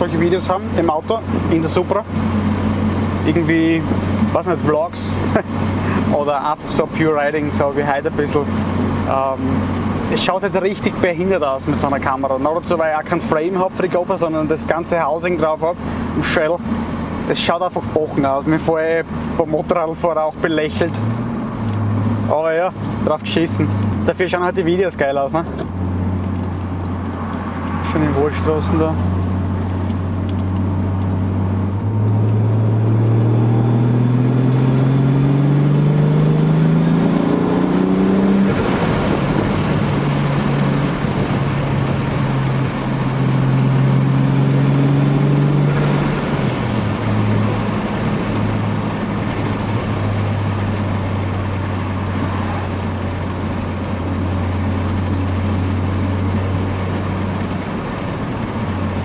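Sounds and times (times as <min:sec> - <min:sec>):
car exhaust revving: 0:20.3 - 0:59.0.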